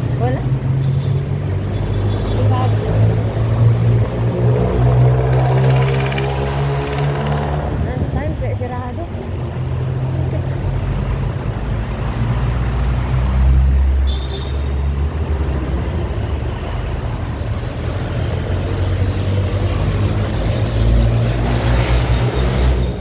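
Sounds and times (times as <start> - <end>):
vehicle engine passing: 1.9 - 8.4, 14.8 - 23.0.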